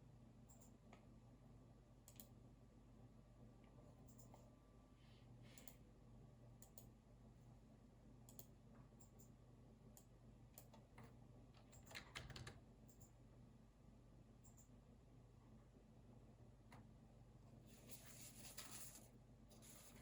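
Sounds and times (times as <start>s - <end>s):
faint keyboard typing: 2.0s - 2.4s, 3.6s - 4.5s, 5.5s - 5.8s, 6.6s - 7.0s, 8.2s - 13.2s.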